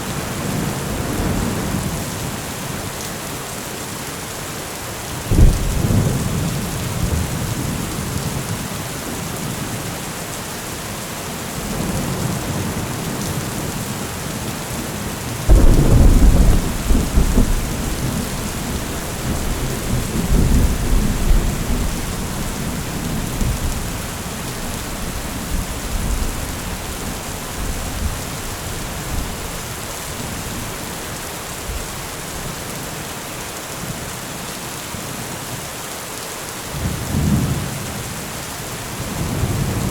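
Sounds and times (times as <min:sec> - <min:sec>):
heavy rain: 0:00.0 - 0:39.9
loud thunderclap: 0:05.3 - 0:07.7, 0:15.5 - 0:29.4
rolling thunder: 0:05.3 - 0:08.2, 0:15.5 - 0:30.6.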